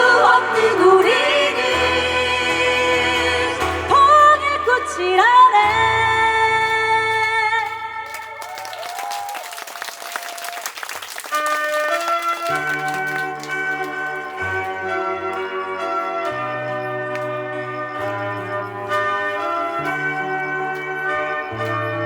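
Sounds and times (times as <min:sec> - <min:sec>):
choir singing with keyboard and guitar: 0:00.0 - 0:07.8
applause: 0:06.5 - 0:22.0
bell-like keyboard notes: 0:12.8 - 0:22.0.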